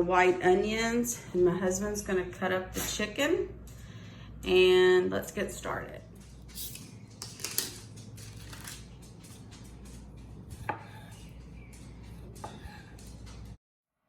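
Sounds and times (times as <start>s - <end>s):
low steady hum: 0.0s - 13.6s.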